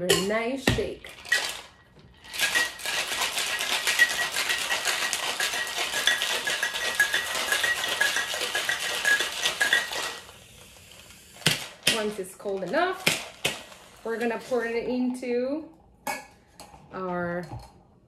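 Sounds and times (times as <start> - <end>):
ice rattling in cocktail shaker: 1.0 - 10.4.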